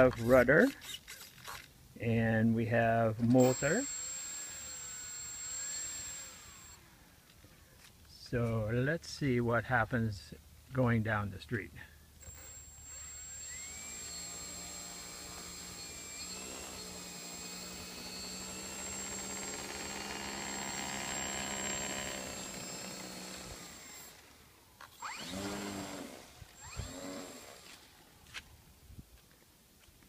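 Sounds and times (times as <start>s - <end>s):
model plane electric motor: 3.4s - 6.8s, 12.2s - 24.2s, 25.0s - 28.0s.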